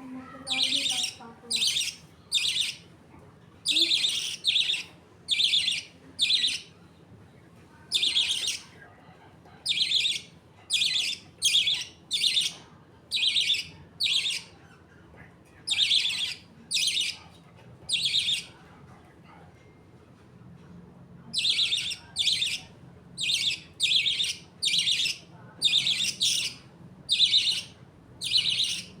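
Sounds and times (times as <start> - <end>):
budgerigars chirping: 0.5 - 2.8, 3.7 - 6.7, 7.9 - 8.7, 9.7 - 14.6, 15.7 - 17.2, 17.9 - 18.5, 21.4 - 29.0.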